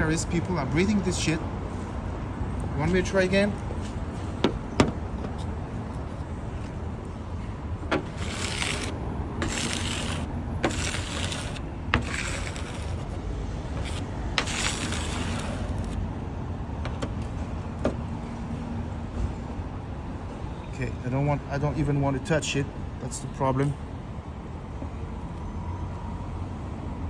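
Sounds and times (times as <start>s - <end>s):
low traffic hum: 0.0s - 27.0s
magnet scraping dusty surface: 7.9s - 16.0s.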